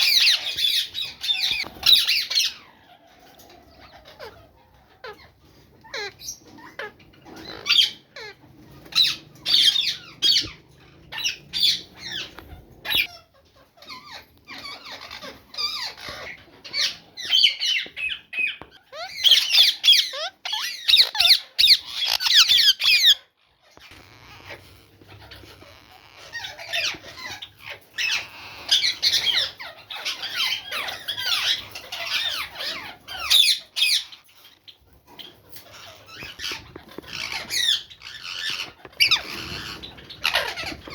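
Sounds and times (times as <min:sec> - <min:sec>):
bird chicks chirping: 0:00.0 - 0:40.9.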